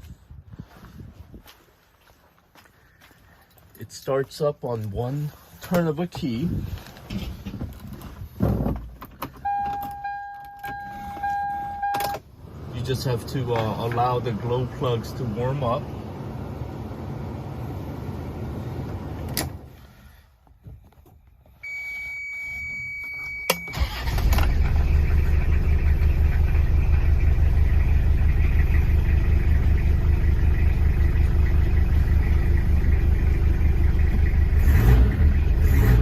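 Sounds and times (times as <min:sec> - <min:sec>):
diesel engine starting and idling: 0:09.1 - 0:20.2, 0:23.5 - 0:36.0
steady electronic beep: 0:09.5 - 0:12.1.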